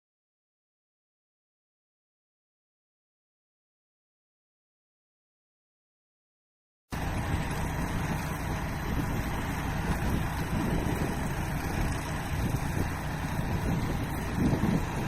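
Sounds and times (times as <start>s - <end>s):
farm machinery running: 6.9s - 15.0s
wind noise on microphone: 8.7s - 15.0s.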